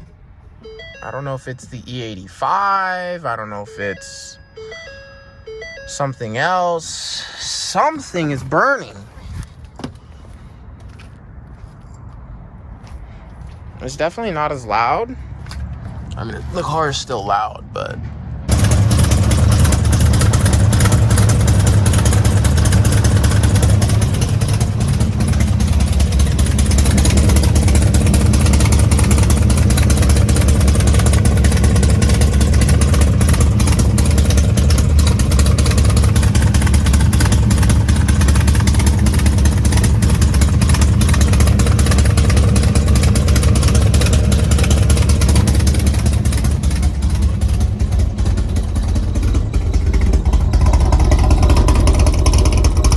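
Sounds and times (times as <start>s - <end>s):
rough loud car engine idling: 5.9s - 10.9s, 18.5s - 52.9s.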